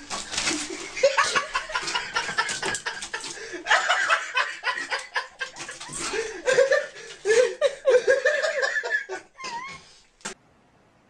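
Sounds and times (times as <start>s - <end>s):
person laughing in choppy bursts: 0.6s - 9.8s.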